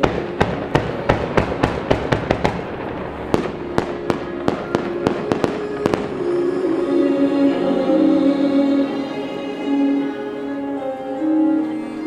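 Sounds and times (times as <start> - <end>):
fireworks bangs: 0.0 - 9.2
music playing: 0.0 - 12.0.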